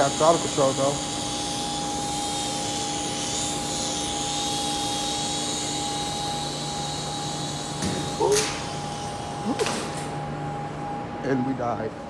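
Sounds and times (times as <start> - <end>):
toy helicopter motor whirring: 0.0 - 10.1.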